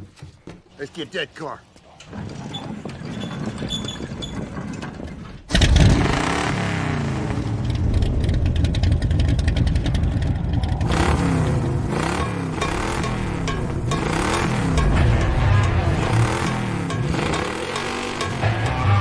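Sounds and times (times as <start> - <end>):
car engine revving: 5.5 - 19.0.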